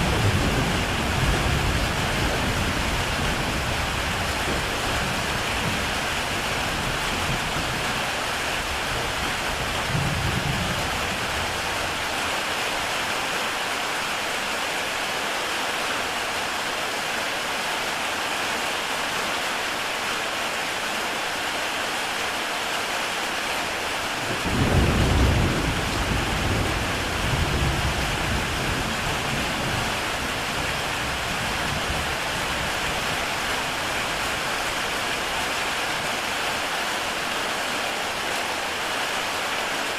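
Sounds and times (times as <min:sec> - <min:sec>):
thunder rumble: 0:00.0 - 0:08.0, 0:24.3 - 0:32.8
heavy rain on a roof: 0:00.0 - 0:39.9.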